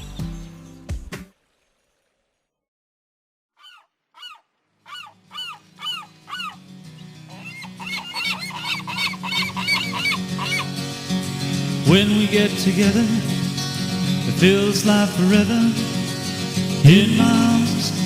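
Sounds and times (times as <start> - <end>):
bird honking calls: 3.6 - 11.0
music with low backing: 5.9 - 18.0.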